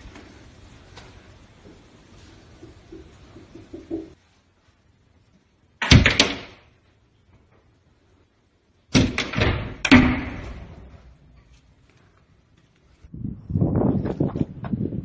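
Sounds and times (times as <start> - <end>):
loud bangs: 8.9 - 11.0.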